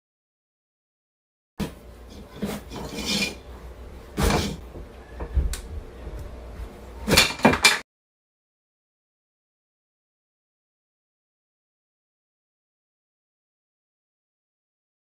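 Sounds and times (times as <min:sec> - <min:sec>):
objects knocking and clattering: 0:07.0 - 0:07.8.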